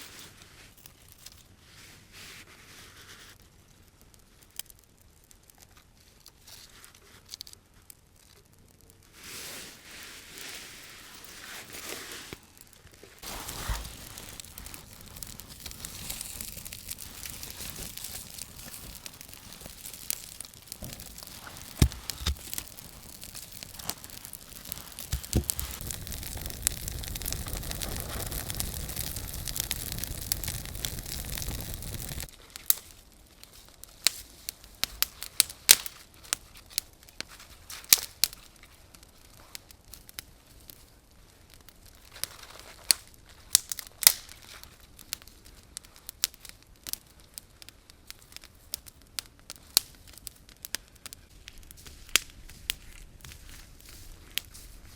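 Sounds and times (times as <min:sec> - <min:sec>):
wood fire crackling: 0:00.0 - 0:54.9
steady hiss: 0:13.2 - 0:32.3
sharp pops: 0:16.9 - 0:32.3.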